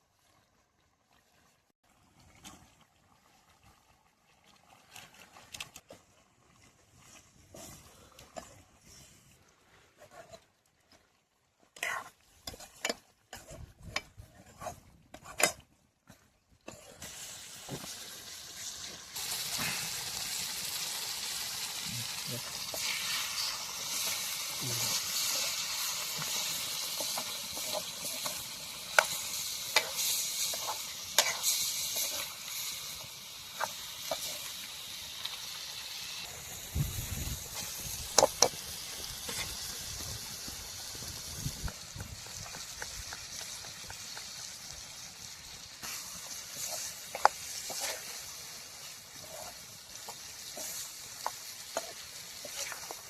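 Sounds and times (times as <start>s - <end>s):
curry sizzling in a pan: 11.6s - 15.6s, 16.6s - 53.0s
utensil scraping against pan: 11.8s - 15.6s, 24.9s - 32.7s, 45.8s - 48.3s.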